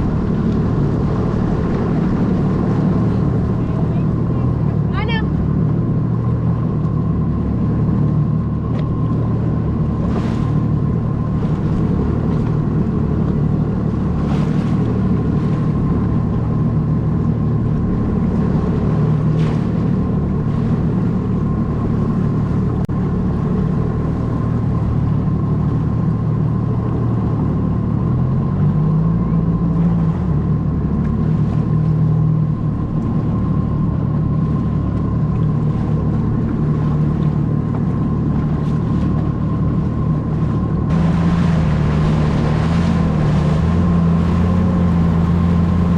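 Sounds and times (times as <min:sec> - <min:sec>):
jet ski engine running: 0:00.0 - 0:45.9.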